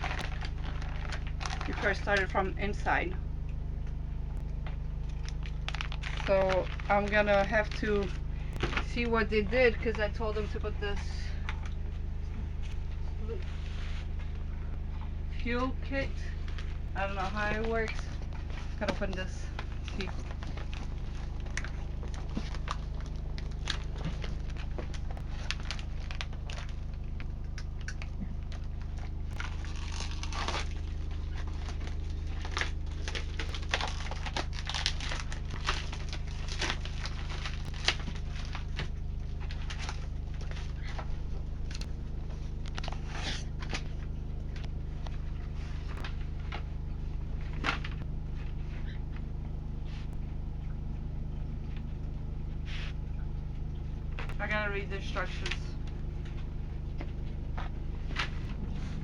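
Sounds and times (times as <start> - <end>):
plastic and paper crinkling: 0.0 - 2.9, 5.0 - 10.6, 16.4 - 46.8
steady low hum: 0.0 - 59.0.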